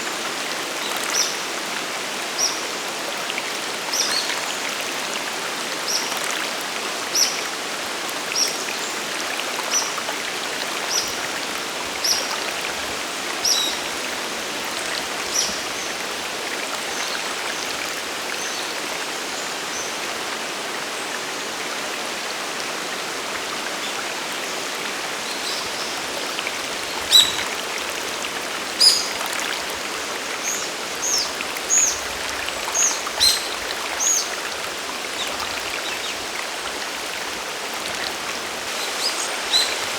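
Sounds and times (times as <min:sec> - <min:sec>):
waterfall rushing: 0:23.2 - 0:39.9
bird chirping: 0:27.0 - 0:27.5.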